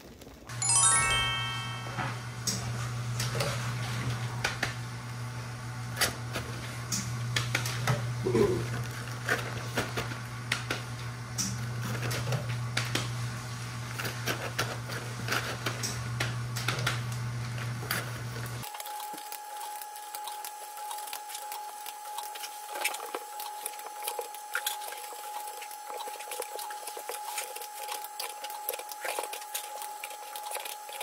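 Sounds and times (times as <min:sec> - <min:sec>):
potatoes frying: 0:00.0 - 0:00.5, 0:03.0 - 0:31.0
utensil stirring in a pan: 0:18.0 - 0:31.0.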